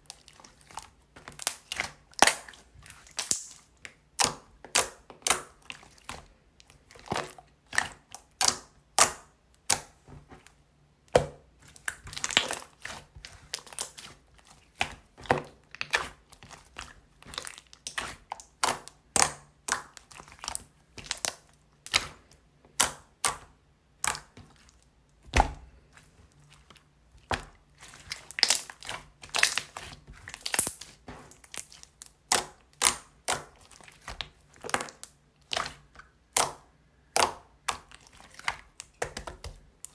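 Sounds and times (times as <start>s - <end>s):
slime crackling and popping: 1.3s - 5.6s, 27.3s - 39.9s.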